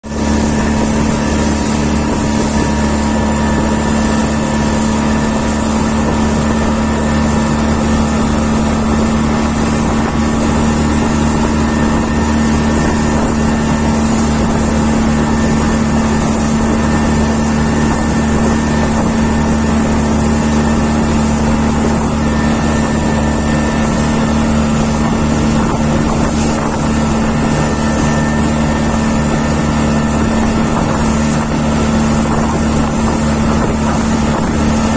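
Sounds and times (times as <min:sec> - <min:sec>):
engine humming steadily: 0:00.0 - 0:34.9.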